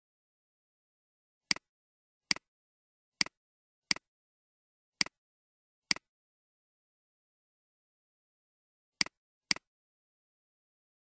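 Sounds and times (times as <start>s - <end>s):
computer mouse button clicks: 9.0s - 9.7s.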